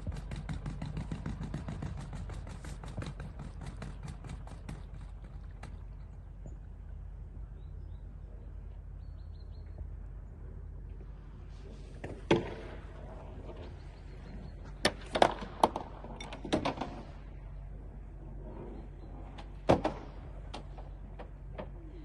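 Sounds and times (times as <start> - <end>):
low mechanical hum: 0.0 - 22.0
sharp knocks and thuds: 12.0 - 13.7.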